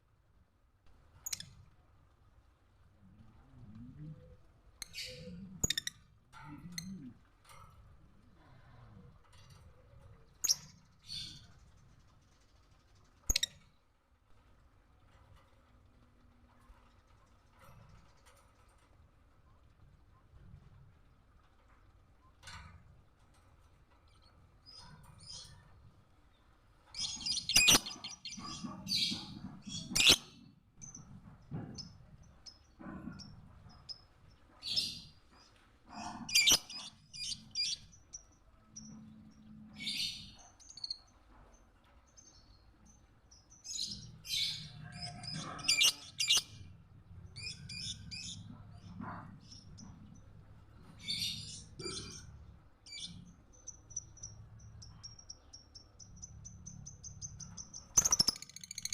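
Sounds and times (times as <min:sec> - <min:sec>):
lovebird chirping: 0:52.9 - 0:58.9.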